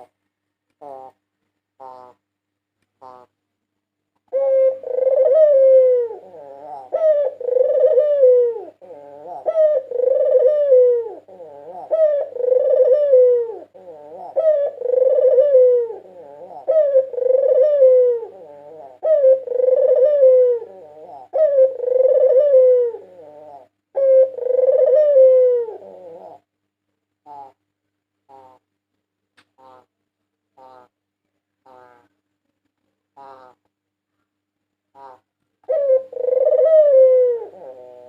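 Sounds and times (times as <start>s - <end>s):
dove cooing: 0.8s - 1.2s, 1.8s - 2.2s, 3.0s - 3.3s, 4.3s - 26.5s, 27.2s - 27.6s, 28.3s - 28.6s, 34.9s - 38.0s.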